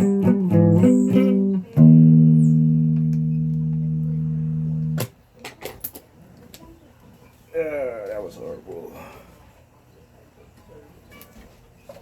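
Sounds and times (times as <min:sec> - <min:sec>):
guitar picked notes and chord: 0:00.0 - 0:05.1.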